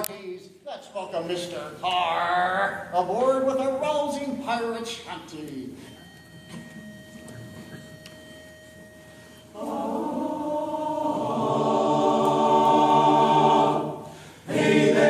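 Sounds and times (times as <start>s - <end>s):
choir singing held chord: 9.5s - 15.0s.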